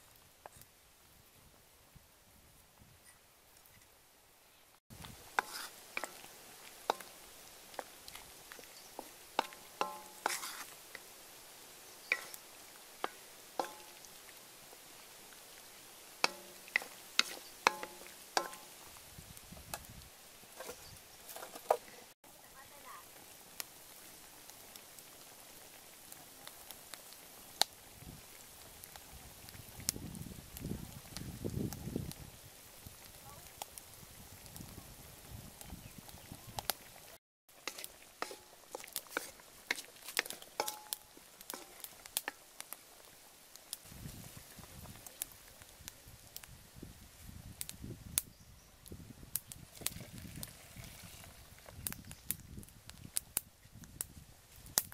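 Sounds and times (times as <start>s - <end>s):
broth simmering: 3.0s - 53.9s
wooden spatula knocking metal wok: 5.3s - 10.8s, 12.1s - 14.2s, 16.2s - 18.8s, 20.6s - 21.9s, 37.6s - 42.4s
wooden spoon knocking on metal wok: 6.9s - 7.2s, 8.5s - 10.6s, 13.0s - 14.1s, 16.2s - 18.8s, 39.7s - 41.0s.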